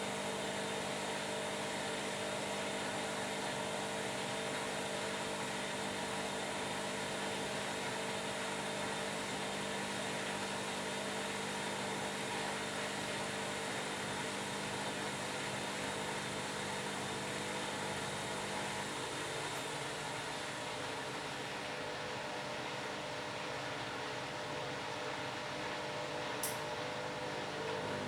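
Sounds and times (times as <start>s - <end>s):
washing machine running: 26.8s - 28.0s.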